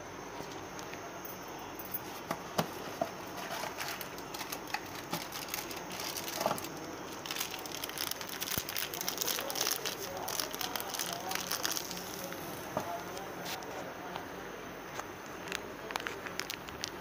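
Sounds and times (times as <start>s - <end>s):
paste sizzling in hot oil: 10.0s - 13.1s.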